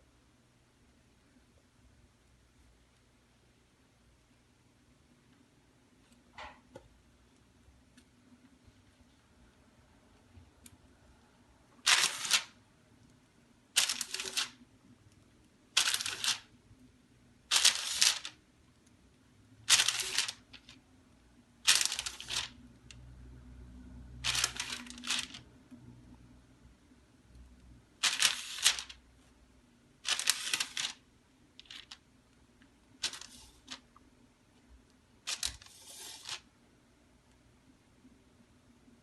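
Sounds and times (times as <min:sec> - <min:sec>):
plastic piping bag crinkling: 0:11.8 - 0:12.6, 0:13.7 - 0:14.6, 0:15.7 - 0:16.5, 0:17.5 - 0:18.4, 0:19.6 - 0:20.8, 0:21.6 - 0:22.6, 0:24.2 - 0:25.4, 0:28.0 - 0:29.0, 0:30.0 - 0:31.0, 0:31.6 - 0:32.0, 0:33.0 - 0:33.8, 0:35.3 - 0:36.4.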